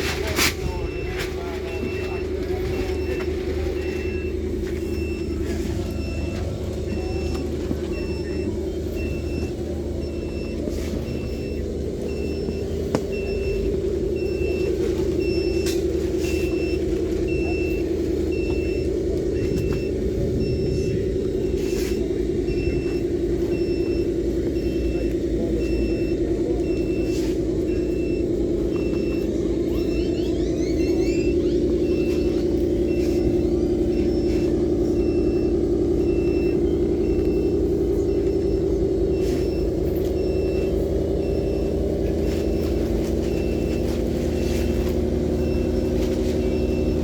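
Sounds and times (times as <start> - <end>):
engine drone: 0.0 - 47.0
reversing alarm beeping: 0.0 - 47.0.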